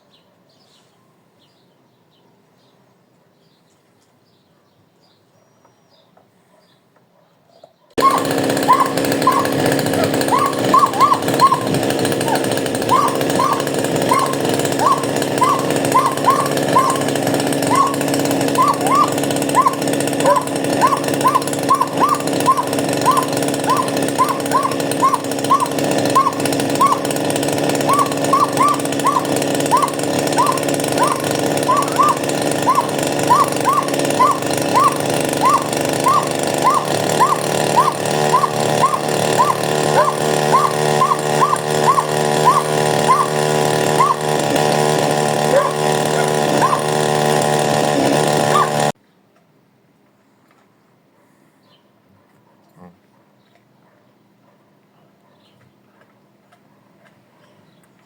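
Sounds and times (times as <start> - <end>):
short high hooked sounds: 8.0 - 48.9
chainsaw engine running: 8.0 - 49.0.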